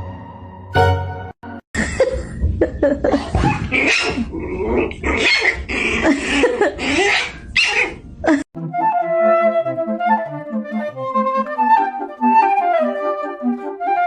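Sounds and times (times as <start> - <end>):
dog growling and barking: 3.1 - 8.4.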